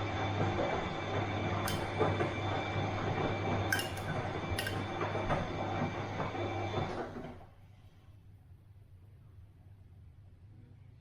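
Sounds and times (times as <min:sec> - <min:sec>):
washing machine humming: 0:00.0 - 0:07.8
sharp clinks from drum: 0:01.7 - 0:02.0.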